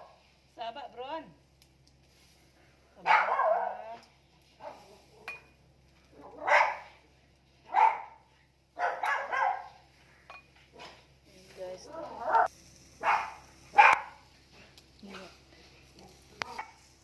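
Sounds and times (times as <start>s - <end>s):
dog barking: 3.0s - 4.0s, 4.6s - 5.3s, 6.2s - 7.0s, 7.7s - 9.8s, 12.2s - 14.2s.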